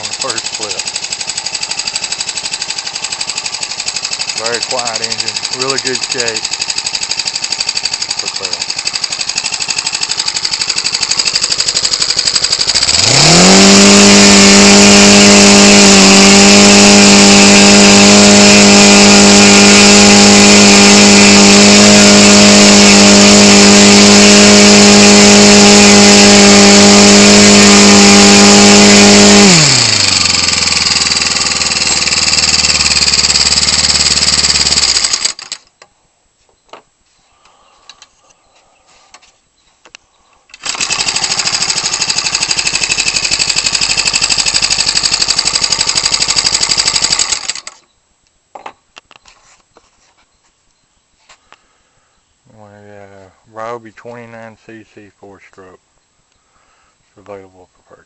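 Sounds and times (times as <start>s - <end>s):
propeller engine revving: 0.0s - 35.6s, 40.6s - 47.8s.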